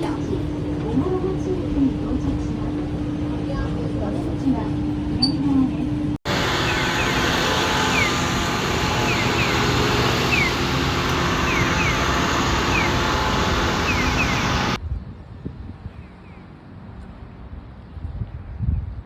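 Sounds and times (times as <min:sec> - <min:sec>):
vehicle engine running: 0:00.0 - 0:14.8.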